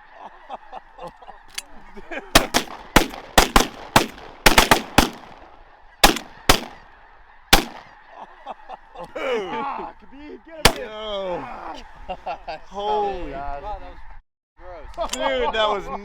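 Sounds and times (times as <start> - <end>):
geese honking: 0.0 - 12.1
shotgun shots: 2.4 - 6.9, 7.5 - 8.0, 10.7 - 10.9.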